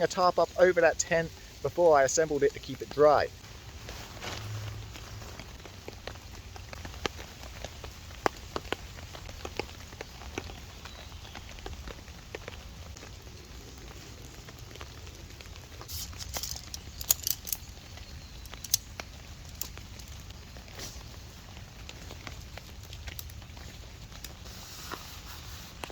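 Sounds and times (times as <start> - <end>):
rain on a tarp: 0.0 - 25.9
sharp clicks and rustling: 15.8 - 21.1, 21.8 - 25.1.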